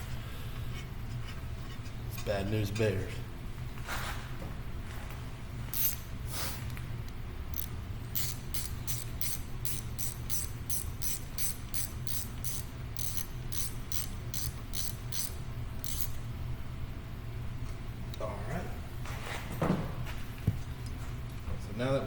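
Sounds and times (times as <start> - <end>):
hand ratchet clicking: 5.7 - 6.0, 7.5 - 16.2.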